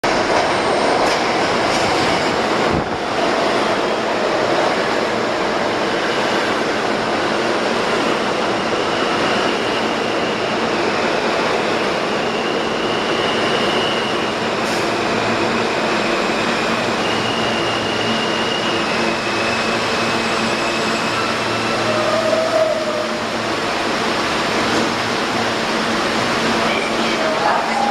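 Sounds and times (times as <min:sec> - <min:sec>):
train wheels rumbling on rails: 0:00.0 - 0:27.9
high wheel squeals: 0:15.4 - 0:23.2.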